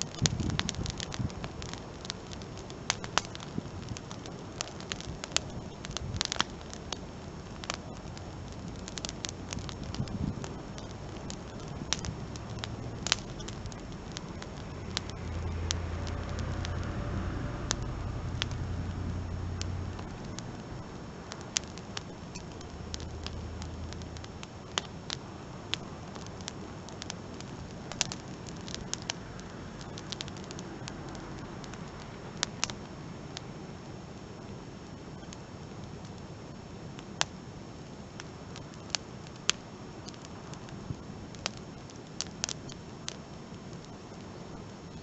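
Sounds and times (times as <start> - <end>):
wood fire crackling and popping: 0.0 - 45.0
low hum: 7.2 - 26.0.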